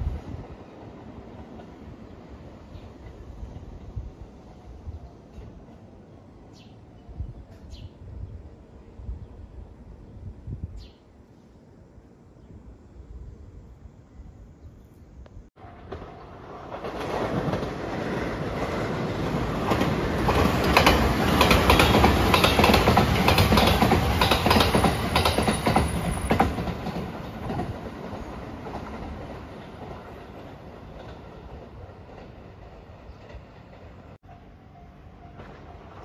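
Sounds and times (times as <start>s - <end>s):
electric train passing: 15.6s - 36.0s
train wheels clicking over rail joints: 15.8s - 34.2s.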